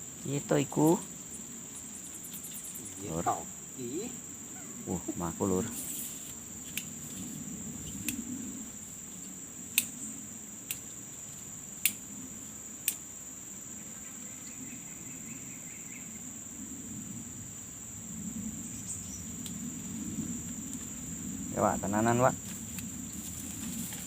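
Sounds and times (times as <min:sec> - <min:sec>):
insects buzzing: 0:00.0 - 0:24.0
sharp clicks: 0:11.8 - 0:12.0, 0:12.8 - 0:13.0.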